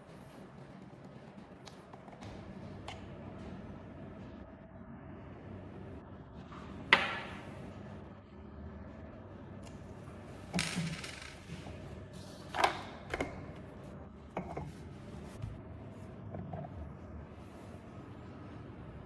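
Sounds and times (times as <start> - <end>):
metal parts clinking and knocking: 10.5 - 11.8.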